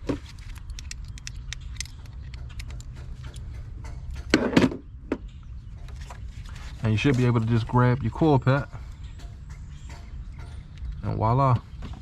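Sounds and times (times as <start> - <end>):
metal rattle: 0.0 - 12.0
steady low hum: 0.0 - 12.0
metallic clicks of hand tools: 0.5 - 4.4.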